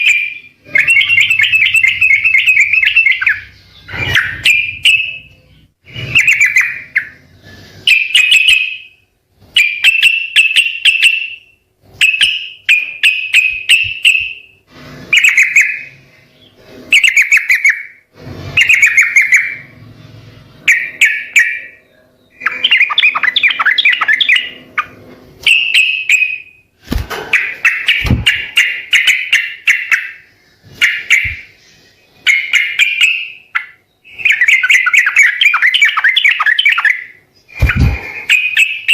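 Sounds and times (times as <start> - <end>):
bird singing chattering phrases: 0.0 - 9.0, 20.7 - 26.6, 27.3 - 38.9.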